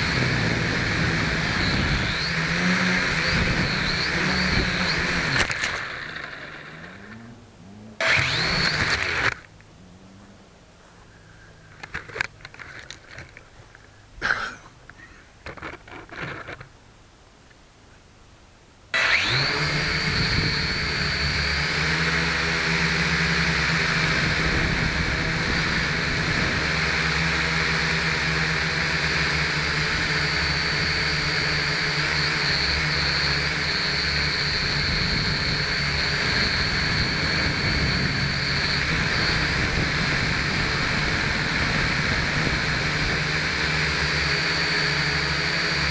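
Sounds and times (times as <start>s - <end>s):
quadcopter motors whining: 0.0s - 9.7s, 19.0s - 45.9s
handling knocks and clicks: 11.8s - 14.0s.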